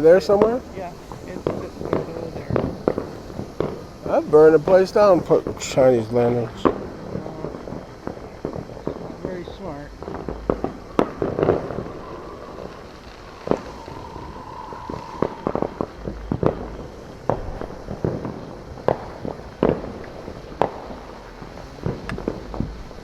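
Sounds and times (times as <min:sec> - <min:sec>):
distant fireworks bangs: 0:00.0 - 0:23.0
steady tone: 0:09.8 - 0:17.6.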